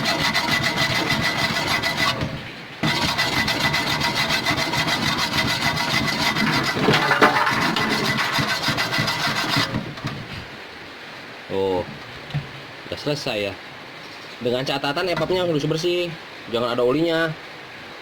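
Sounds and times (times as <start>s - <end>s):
rapid rubbing strokes on metal: 0.0s - 9.9s.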